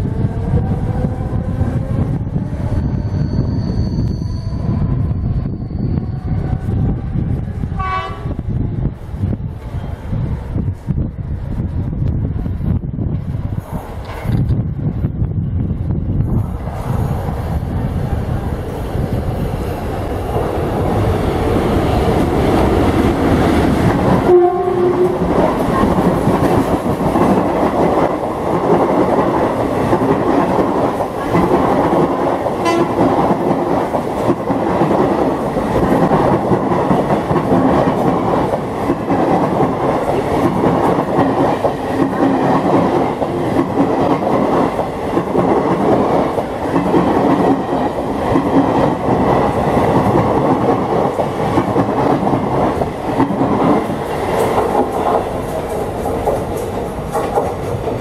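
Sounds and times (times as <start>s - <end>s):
train rushing past: 0.0s - 58.0s
train horn blast: 7.8s - 8.4s, 24.1s - 26.0s, 32.6s - 33.0s.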